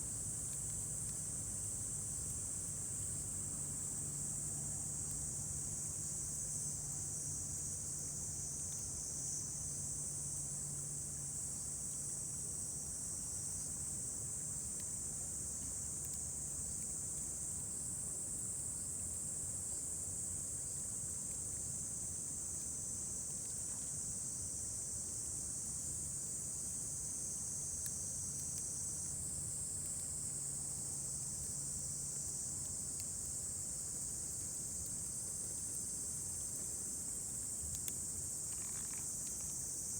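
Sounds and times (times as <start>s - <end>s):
insects trilling: 35.6s - 39.9s.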